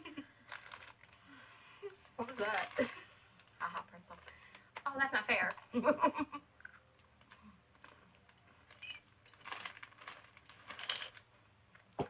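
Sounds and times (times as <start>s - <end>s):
crunchy snack mix crackling: 6.6s - 11.9s.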